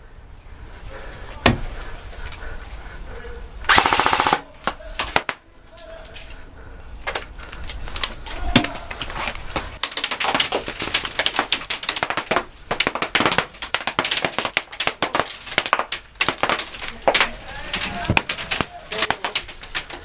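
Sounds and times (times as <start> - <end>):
airsoft gunfire: 3.7 - 5.3, 11.2 - 16.7
pellets striking: 9.7 - 20.0.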